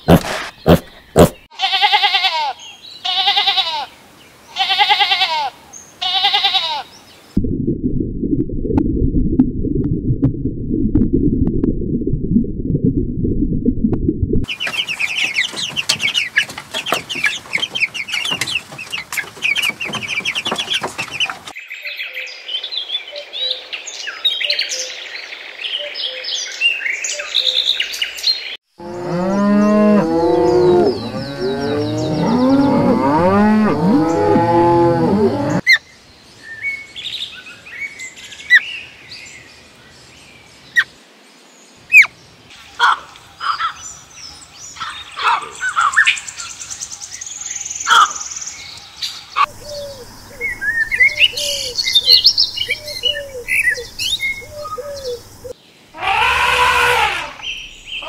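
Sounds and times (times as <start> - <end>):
chicks peeping: 14.5 - 21.5
bird chirps and calls: 14.5 - 22.3, 44.7 - 58.0
cattle mooing: 28.8 - 35.6.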